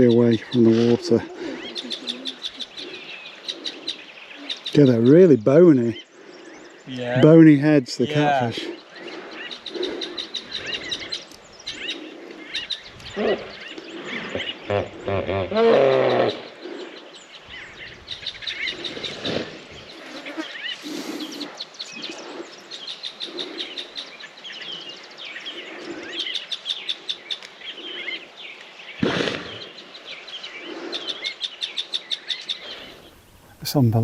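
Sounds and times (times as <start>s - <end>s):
birds chirping: 0.0s - 34.0s
low-pitched bird call: 8.5s - 22.4s.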